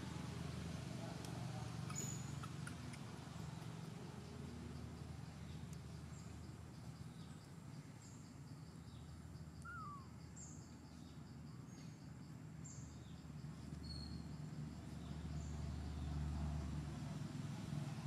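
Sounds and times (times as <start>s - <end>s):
bird chirps: 1.8s - 3.0s, 8.8s - 12.0s, 12.6s - 16.1s
slurred bird call: 9.6s - 10.1s.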